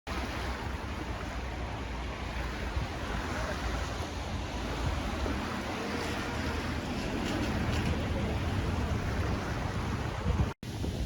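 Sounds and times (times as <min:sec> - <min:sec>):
rough sea: 0:00.1 - 0:11.0
wind buffeting microphone: 0:00.1 - 0:11.0
storm wind rushing: 0:02.6 - 0:11.0.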